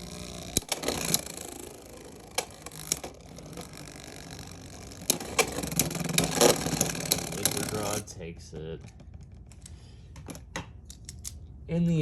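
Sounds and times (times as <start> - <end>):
plastic spinning tops clattering: 0.0 - 8.1.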